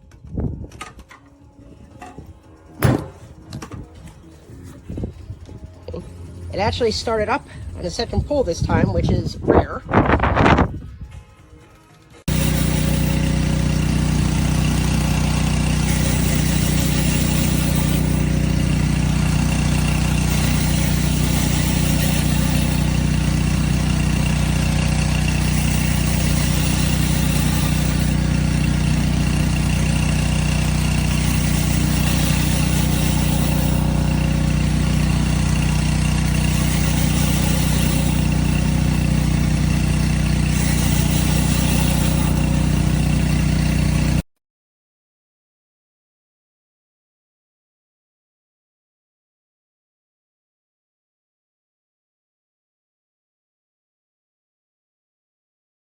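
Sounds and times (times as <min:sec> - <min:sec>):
pressure washer engine running: 0:12.3 - 0:44.2.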